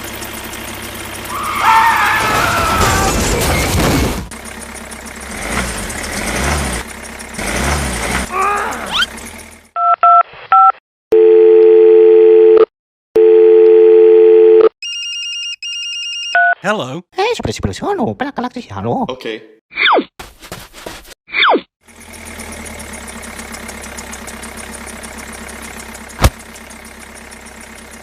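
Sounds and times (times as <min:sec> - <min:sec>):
engine-like running sound: 0:00.0 - 0:09.8, 0:21.8 - 0:28.0
telephone ringing tones: 0:09.8 - 0:16.6.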